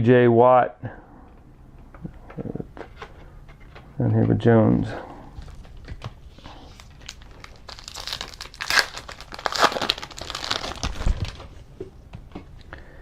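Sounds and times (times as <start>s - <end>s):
foil wrapper crinkling: 5.4s - 11.6s.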